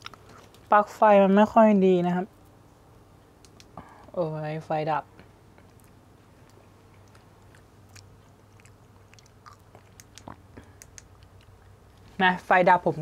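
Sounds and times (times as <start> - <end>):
faint chewing: 0.0 - 0.7, 5.5 - 12.2
low steady hum: 0.0 - 13.0
soft mouth clicks: 3.4 - 3.8, 5.6 - 11.8.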